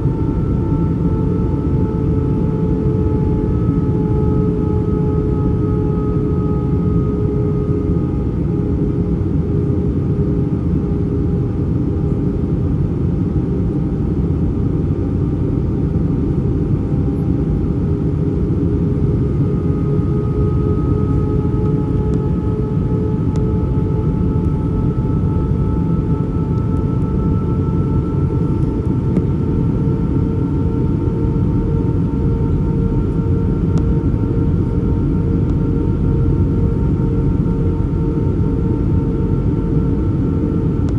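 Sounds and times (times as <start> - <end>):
engine whine tones: 0.0 - 12.8, 13.4 - 40.9
airplane cabin rumble: 0.0 - 40.9.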